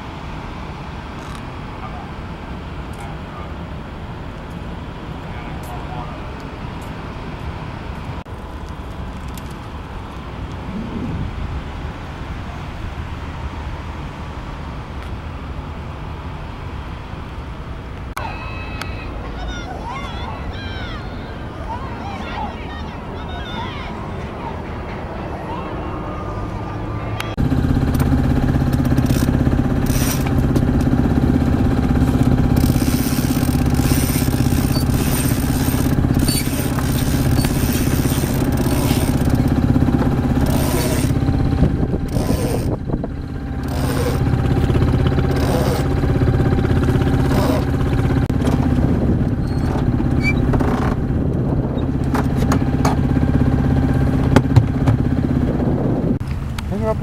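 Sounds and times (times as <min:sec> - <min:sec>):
boat engine running: 0:09.8 - 0:13.3, 0:26.3 - 0:57.0.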